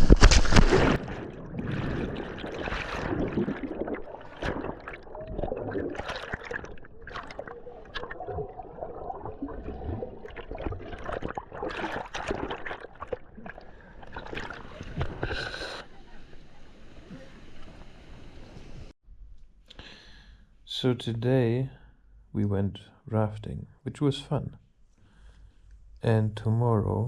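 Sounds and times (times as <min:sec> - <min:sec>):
river water splashing and gurgling: 0:00.0 - 0:15.9.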